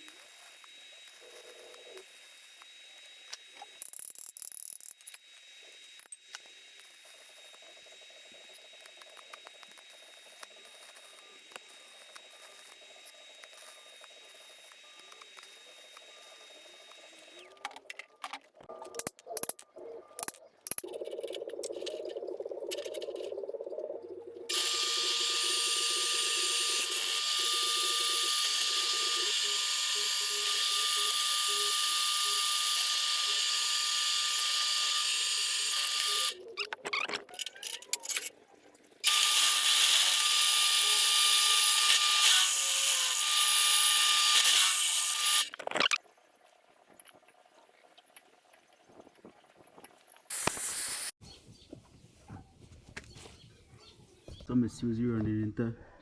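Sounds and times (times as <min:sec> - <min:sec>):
low hum: 0:18.6 - 0:26.7
power tool squealing on metal: 0:24.5 - 0:38.3.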